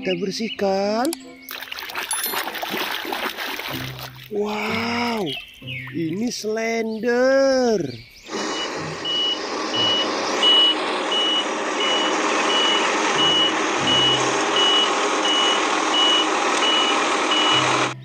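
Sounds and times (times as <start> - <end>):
road roller engine running: 8.2 - 18.0
reversing alarm beeping: 8.3 - 18.0.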